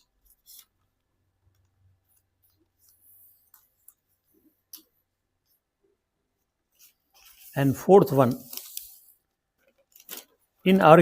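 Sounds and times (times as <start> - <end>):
paper crinkling being folded: 6.8 - 11.0.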